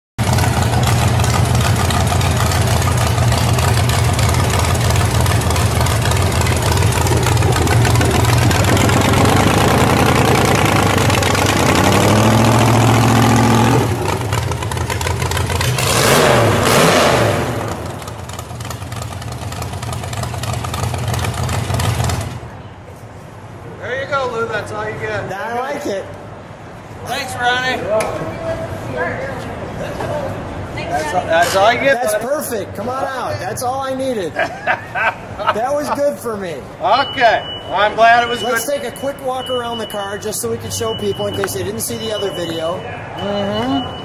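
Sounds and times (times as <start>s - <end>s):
car engine running and revving: 0.2s - 22.4s.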